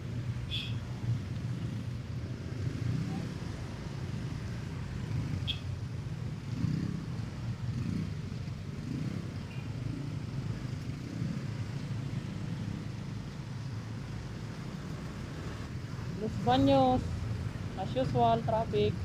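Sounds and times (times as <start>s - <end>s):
motorcycle engine and road rumble: 0.0s - 19.0s.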